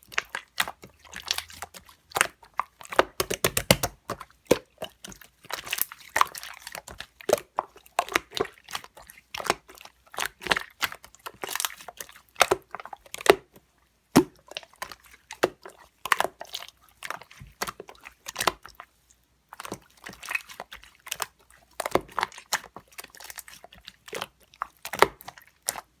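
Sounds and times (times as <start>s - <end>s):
slime squished by hand: 0.0s - 13.5s.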